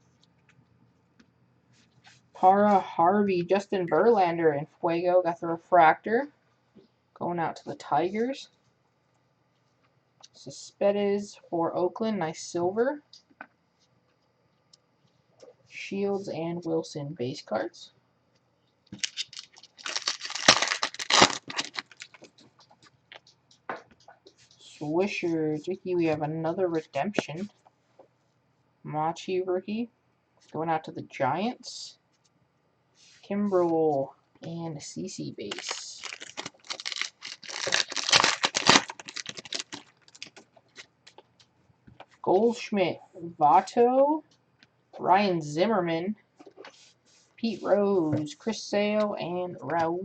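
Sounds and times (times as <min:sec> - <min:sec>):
foil wrapper crinkling: 0:19.0 - 0:22.7, 0:35.4 - 0:40.9.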